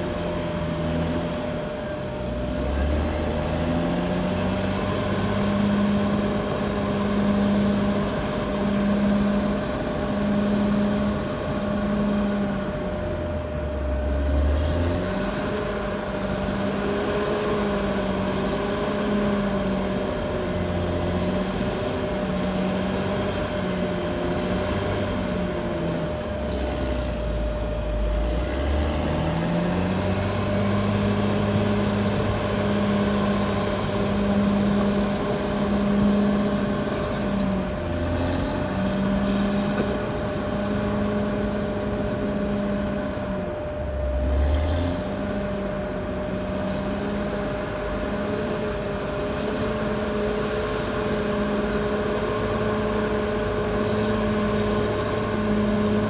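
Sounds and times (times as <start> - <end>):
bulldozer diesel engine under load: 0.0 - 56.0
steady high whine: 0.0 - 56.0.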